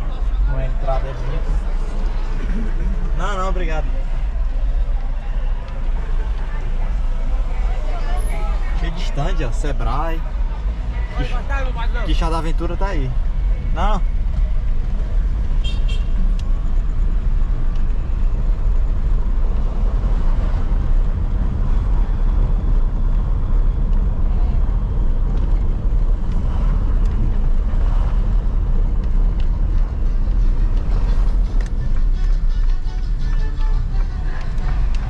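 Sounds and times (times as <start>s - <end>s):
road and engine rumble in car: 0.0s - 35.0s.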